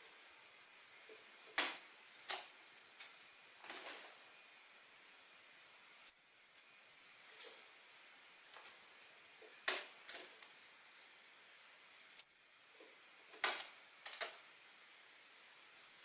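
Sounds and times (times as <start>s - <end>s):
high insect-like trill: 0.0s - 10.2s, 15.6s - 16.0s.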